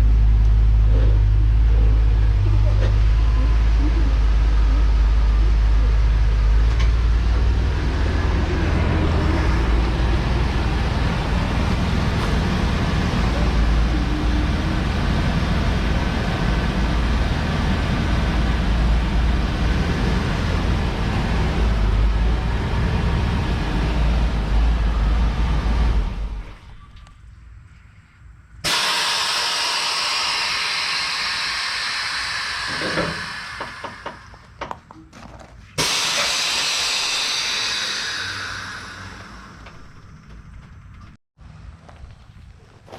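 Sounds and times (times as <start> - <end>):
vehicle engine rumbling: 0.0 - 42.9
loud steady hiss: 28.6 - 34.6, 35.8 - 39.9.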